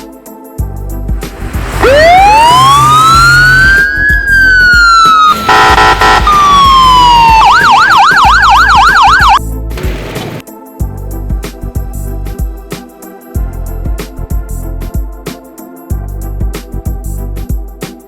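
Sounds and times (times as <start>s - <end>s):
siren wailing: 1.6s - 9.4s
siren yelping: 1.8s - 9.4s
vehicle horn blast: 5.4s - 6.6s.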